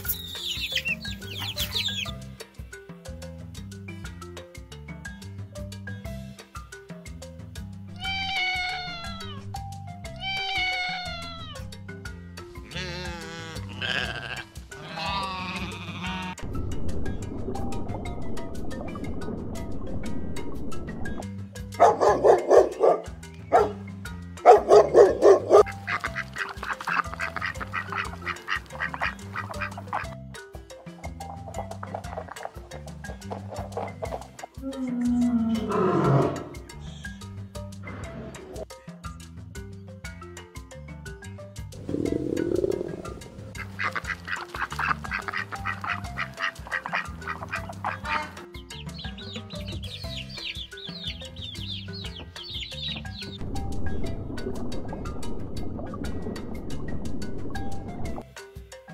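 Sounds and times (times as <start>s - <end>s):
animal calling rapidly: 0.0s - 2.2s, 8.0s - 9.4s, 10.2s - 11.6s, 12.7s - 16.4s, 24.5s - 30.2s, 41.8s - 53.4s
high falling bird chirps: 0.0s - 2.2s, 47.8s - 54.0s
background music: 0.0s - 58.9s.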